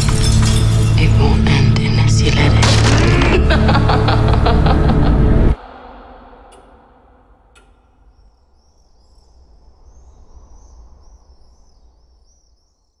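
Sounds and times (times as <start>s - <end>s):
low rumble: 0.8s - 12.2s
small birds chirping: 7.3s - 13.0s.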